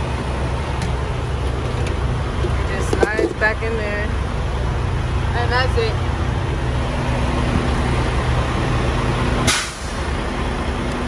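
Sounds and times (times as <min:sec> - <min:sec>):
truck diesel engine idling: 0:00.0 - 0:11.0
short sharp hiss: 0:09.5 - 0:10.0.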